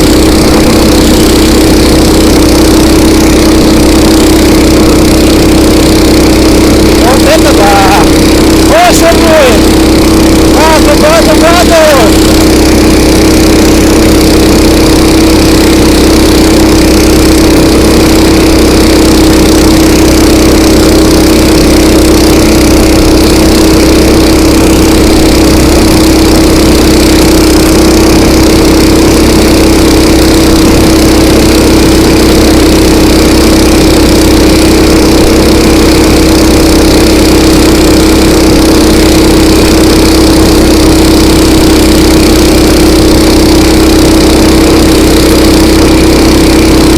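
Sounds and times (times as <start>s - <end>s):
motorized tow unit engine running: 0.0s - 46.9s.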